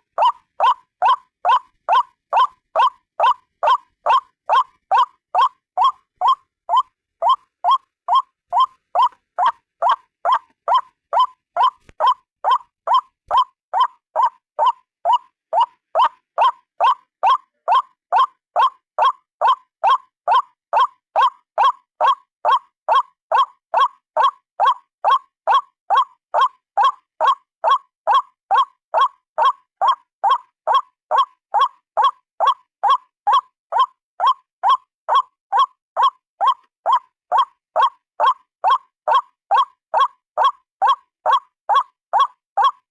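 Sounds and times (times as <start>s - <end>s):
waterhen croaking call: 0.0s - 17.9s.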